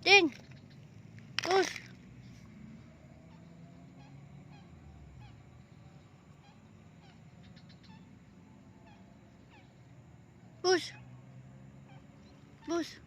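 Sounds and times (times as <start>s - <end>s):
faint short animal calls: 3.2s - 8.2s, 8.8s - 9.9s.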